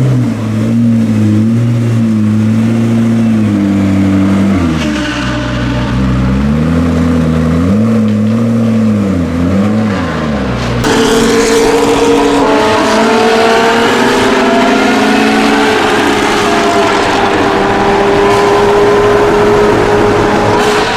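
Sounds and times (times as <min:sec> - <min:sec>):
car engine revving: 0:00.0 - 0:20.9.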